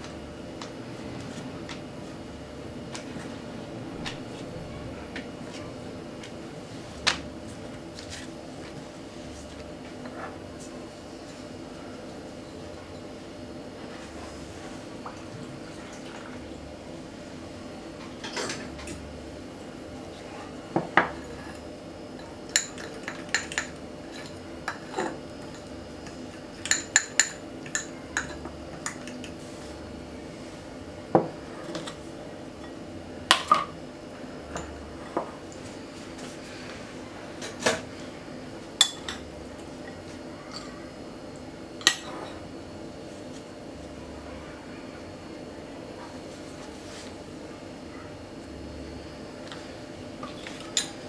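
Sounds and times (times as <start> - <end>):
steady low hum: 0.0 - 46.1
utensils and dishes clinking: 18.0 - 19.1, 20.8 - 29.4, 38.8 - 40.8, 50.2 - 51.0.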